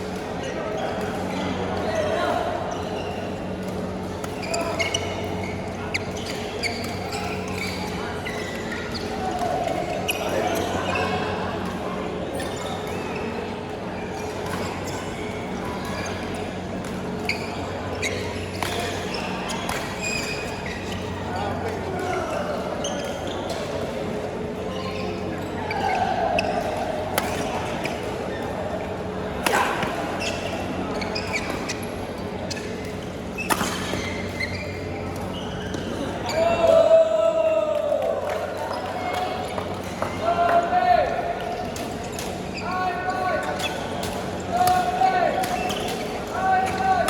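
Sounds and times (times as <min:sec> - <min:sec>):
hall hum and murmur: 0:00.0 - 0:47.0
shoe squeak: 0:04.3 - 0:11.3, 0:14.0 - 0:23.8, 0:24.7 - 0:28.6, 0:30.1 - 0:36.5, 0:42.0 - 0:47.0.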